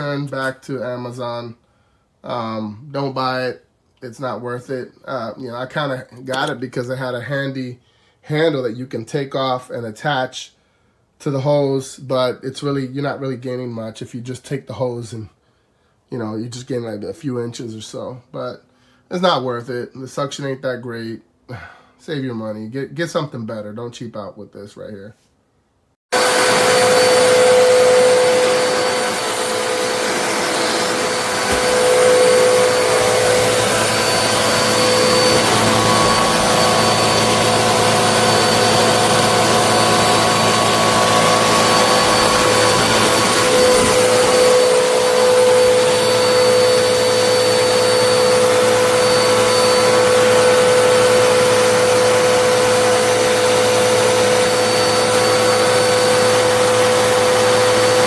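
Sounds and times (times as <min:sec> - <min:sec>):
vacuum cleaner running: 0:26.1 - 0:58.0.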